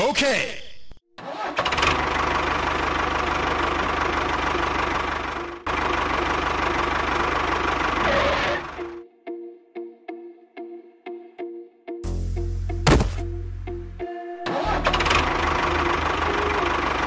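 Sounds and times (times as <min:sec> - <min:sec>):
tractor engine starting and running: 0:01.2 - 0:09.0, 0:14.4 - 0:17.0.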